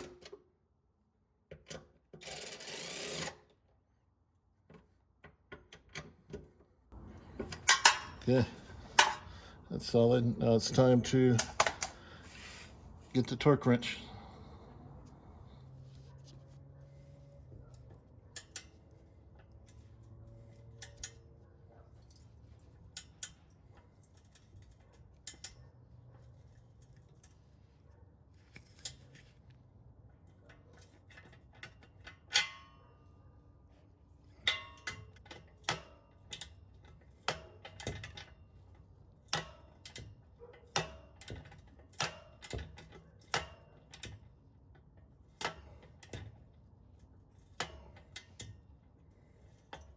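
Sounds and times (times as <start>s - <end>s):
metal clank with ring: 32.3s - 33.0s.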